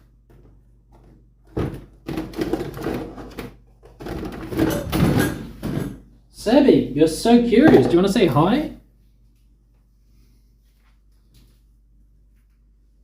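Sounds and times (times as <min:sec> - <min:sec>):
knocks and rattles of objects moved: 0:00.2 - 0:06.1, 0:07.5 - 0:08.7.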